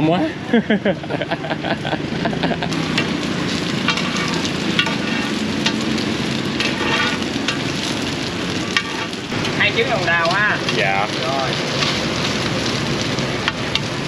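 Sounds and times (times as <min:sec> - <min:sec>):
food sizzling in oil: 0:01.0 - 0:14.0
metal spatulas scraping a pan: 0:03.8 - 0:05.8, 0:06.5 - 0:08.0, 0:08.7 - 0:09.2.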